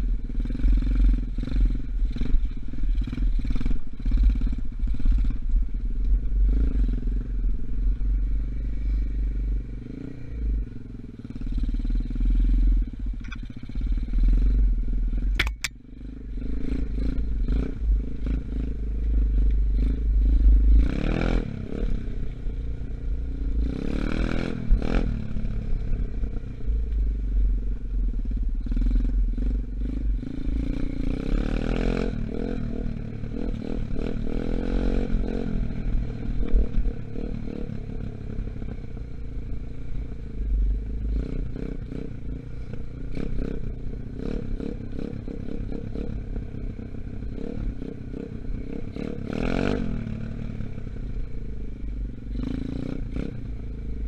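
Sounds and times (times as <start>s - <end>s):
dirt bike engine revving: 23.6s - 26.2s, 28.6s - 37.8s.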